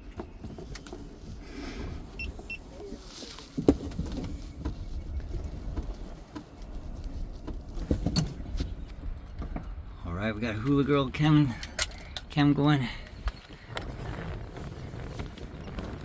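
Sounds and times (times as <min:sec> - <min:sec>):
handling clicks and rustles: 0:00.0 - 0:16.0
steady low rumble: 0:03.9 - 0:16.0.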